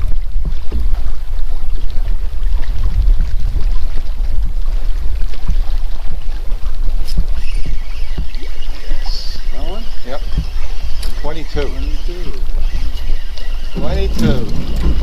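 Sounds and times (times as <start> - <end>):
wind buffeting microphone: 0.0 - 15.0
faint scattered clicks: 12.2 - 15.0.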